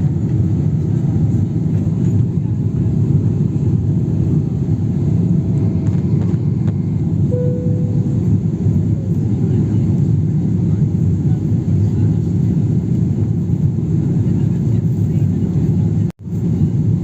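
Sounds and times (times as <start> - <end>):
airliner engine rumble in cabin: 0.0 - 17.0
faint steady hum: 7.3 - 9.3.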